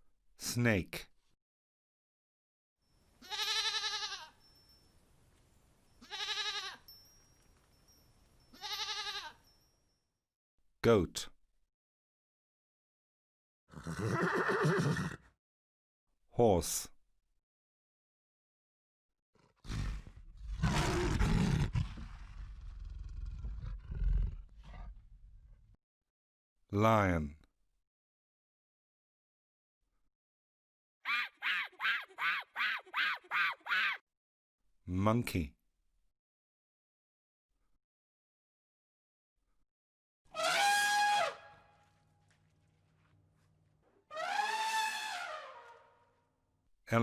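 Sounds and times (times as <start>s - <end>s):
goat bleating: 3.2s - 4.4s, 6.0s - 6.8s, 8.6s - 9.4s
lion grunting calls: 19.4s - 25.0s
lion roaring: 19.4s - 25.6s.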